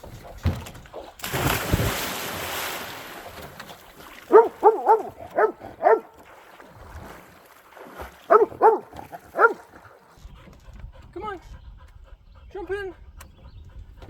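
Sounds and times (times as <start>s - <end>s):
loud water splash: 1.2s - 4.3s
dog barking: 4.3s - 6.2s, 8.3s - 9.7s.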